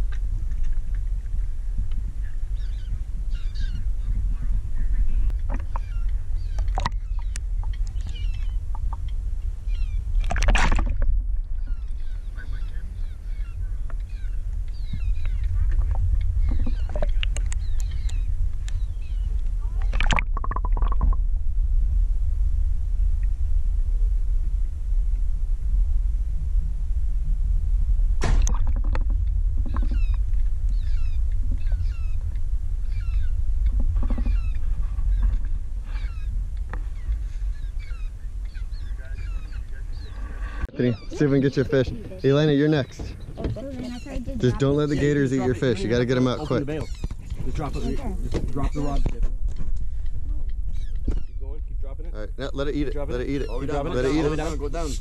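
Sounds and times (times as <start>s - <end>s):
steady low rumble: 0.0s - 55.0s
birds chirping: 2.2s - 21.2s, 28.5s - 55.0s
sharp knock: 28.2s - 29.1s.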